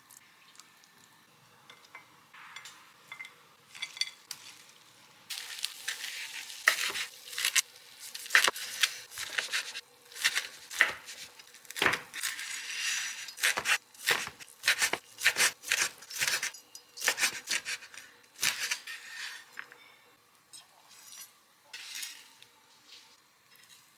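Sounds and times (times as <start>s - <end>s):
utensils scraping a bowl: 12.2s - 19.6s.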